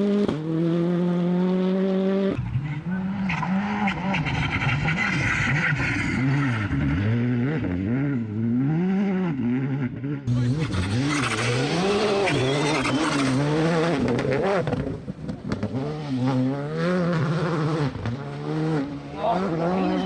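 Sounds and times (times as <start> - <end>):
rally car engine revving: 0.0 - 20.0
tyre and road noise: 10.2 - 20.0.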